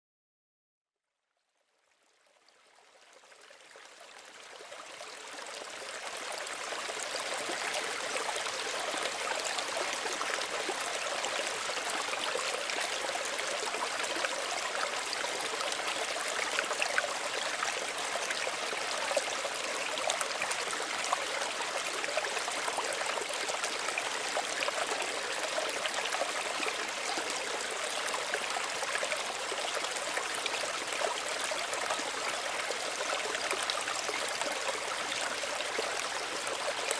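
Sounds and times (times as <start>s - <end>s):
small stream running: 1.2s - 36.9s.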